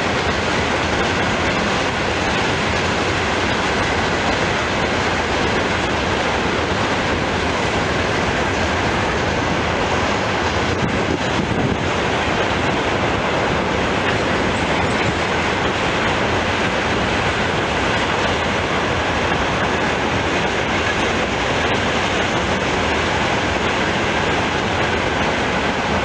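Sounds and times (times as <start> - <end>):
freight train rolling past: 0.0 - 26.0
steel wheels rushing on rails: 0.0 - 26.0.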